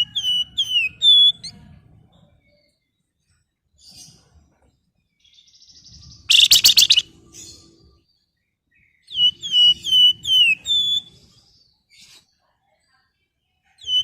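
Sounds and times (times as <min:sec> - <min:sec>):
songbird whistled notes: 0:00.0 - 0:01.6, 0:05.3 - 0:07.6, 0:08.7 - 0:12.2
songbird rattling call: 0:06.1 - 0:07.2.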